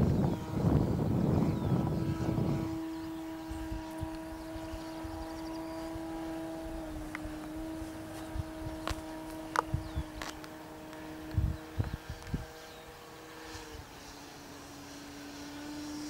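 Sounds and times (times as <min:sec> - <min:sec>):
model plane motor whining: 0:00.0 - 0:16.0.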